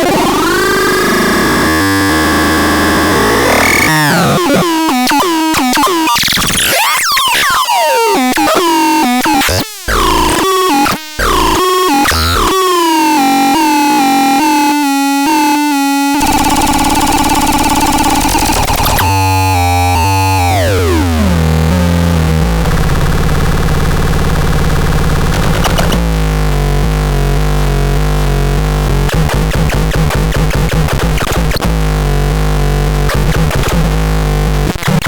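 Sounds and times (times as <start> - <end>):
harsh buzzing synth tone: 0.0 - 7.1, 8.0 - 26.2.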